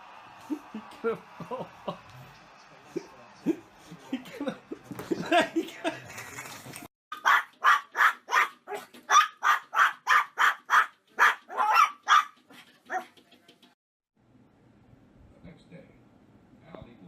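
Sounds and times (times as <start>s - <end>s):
dog barking: 7.1s - 13.1s.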